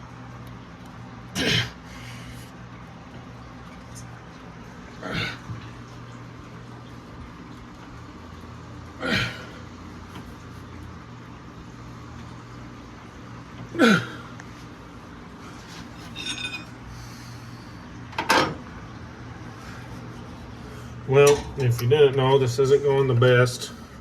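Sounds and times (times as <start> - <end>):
man grunting with effort: 5.0 - 5.5, 9.0 - 9.6, 13.8 - 14.3.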